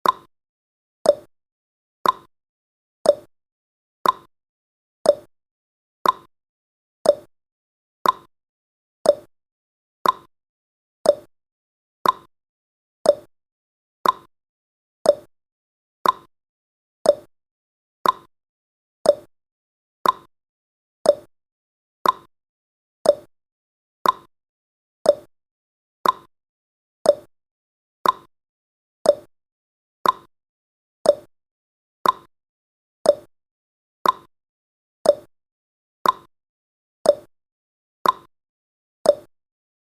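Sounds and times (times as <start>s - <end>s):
timer tick-tock: 0.0s - 0.3s, 1.0s - 1.3s, 2.0s - 2.3s, 3.0s - 3.3s, 4.0s - 4.3s, 5.0s - 5.3s, 6.0s - 6.3s, 7.0s - 7.3s, 8.0s - 8.3s, 9.0s - 9.3s, 10.0s - 10.3s, 11.0s - 11.3s, 12.0s - 12.3s, 13.0s - 13.3s, 14.0s - 14.3s, 15.0s - 15.3s, 16.0s - 16.3s, 17.0s - 17.3s, 18.0s - 18.3s, 19.0s - 19.3s, 20.0s - 20.3s, 21.0s - 21.3s, 22.0s - 22.3s, 23.0s - 23.3s, 24.0s - 24.3s, 25.0s - 25.3s, 26.0s - 26.3s, 27.0s - 27.3s, 28.0s - 28.3s, 29.0s - 29.3s, 30.0s - 30.3s, 31.0s - 31.3s, 32.0s - 32.3s, 33.0s - 33.3s, 34.0s - 34.3s, 35.0s - 35.4s, 36.0s - 36.3s, 37.0s - 37.4s, 38.0s - 38.3s, 39.0s - 39.4s.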